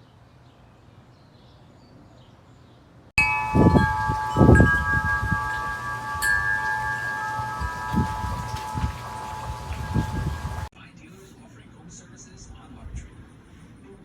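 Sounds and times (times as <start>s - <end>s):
wind chime ringing: 3.2s - 10.7s
wind rumbling on microphone: 3.2s - 10.7s.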